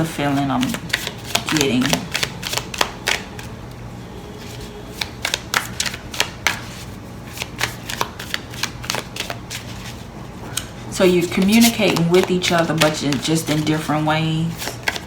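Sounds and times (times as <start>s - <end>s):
cards being shuffled: 0.0s - 3.5s, 4.4s - 10.0s, 11.0s - 15.0s.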